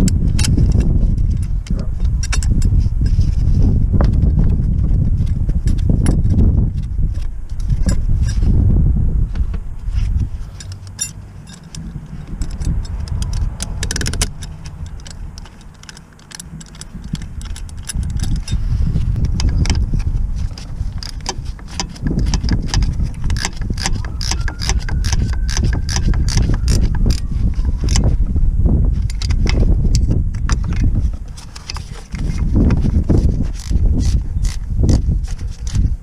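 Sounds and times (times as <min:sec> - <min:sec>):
low rumble: 0:00.0 - 0:31.4
metal tools clinking: 0:10.4 - 0:24.3.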